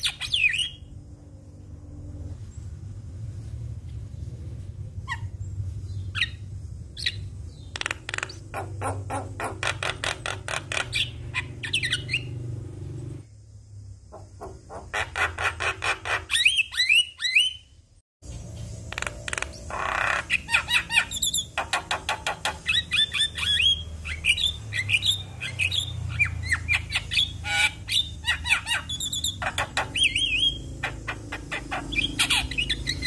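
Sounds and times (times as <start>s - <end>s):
steady low hum: 0.7s - 7.8s
bird singing chattering notes: 5.1s - 12.4s, 18.3s - 33.0s.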